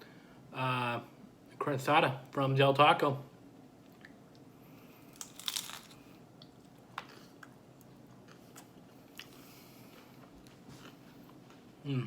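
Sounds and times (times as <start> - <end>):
crunchy bite: 5.1 - 6.1
chewing crunches and clicks: 5.1 - 10.0.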